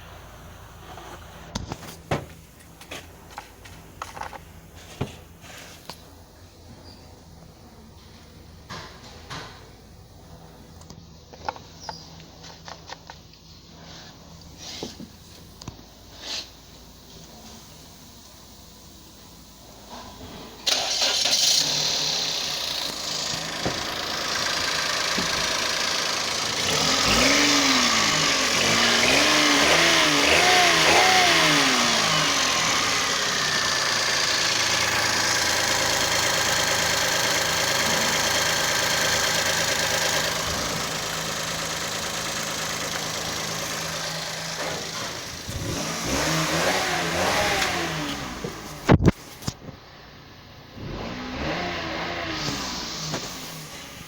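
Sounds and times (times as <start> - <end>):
car engine starting and revving: 20.6 - 49.2, 50.6 - 54.0.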